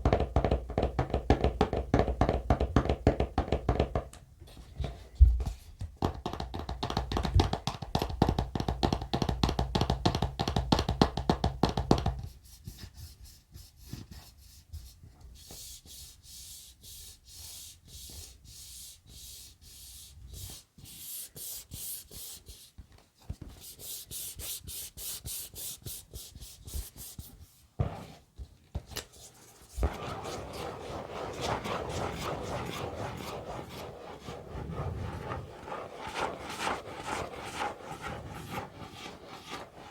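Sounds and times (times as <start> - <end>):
scratching and rubbing on surface: 23.5 - 28.3, 29.1 - 39.9.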